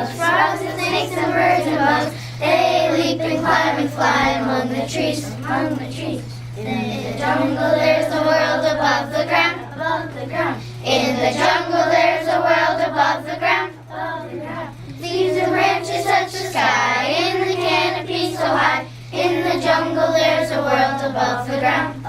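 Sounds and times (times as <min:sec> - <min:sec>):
children singing: 0:00.0 - 0:05.9.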